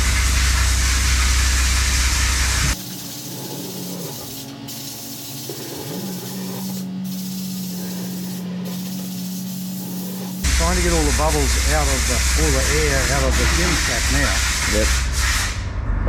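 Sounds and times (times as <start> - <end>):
rushing air hiss: 1.6 - 15.6
deep hum: 5.5 - 16.0
low hum: 15.5 - 16.0.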